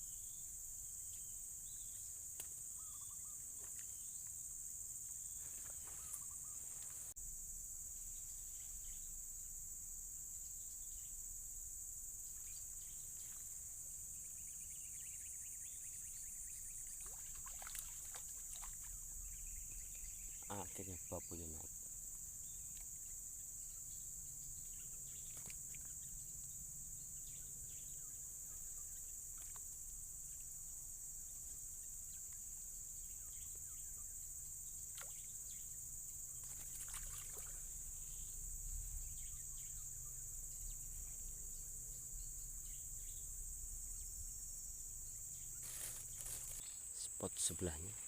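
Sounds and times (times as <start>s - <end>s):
faint ticks and handling sounds: 45.5s - 48.0s.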